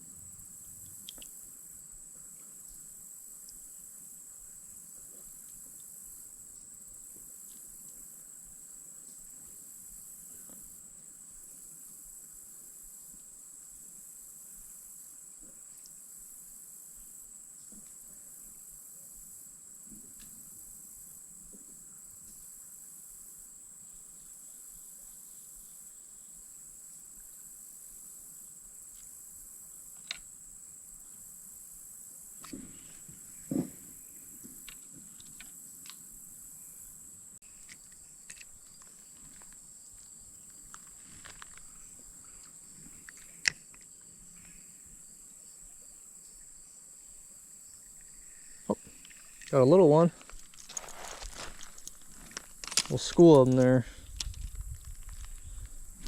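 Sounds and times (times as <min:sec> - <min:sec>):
insects chorus: 0:00.0 - 0:56.0
faint ticks: 0:00.6 - 0:01.5, 0:02.2 - 0:03.7, 0:19.8 - 0:20.5, 0:29.9 - 0:30.4, 0:34.3 - 0:36.2.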